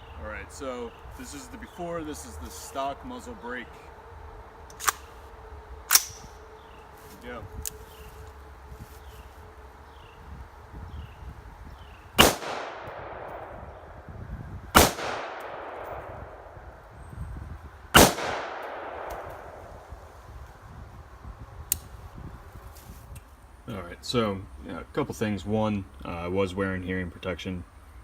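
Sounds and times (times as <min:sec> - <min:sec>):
rifle shots with echo: 0:12.2 - 0:14.0, 0:14.7 - 0:16.6, 0:18.0 - 0:19.9.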